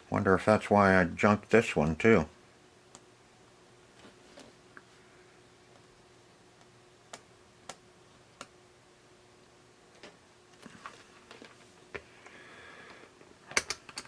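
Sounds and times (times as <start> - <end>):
faint electrical hum: 0.0 - 14.0
small tools clicking and tapping: 13.5 - 14.0.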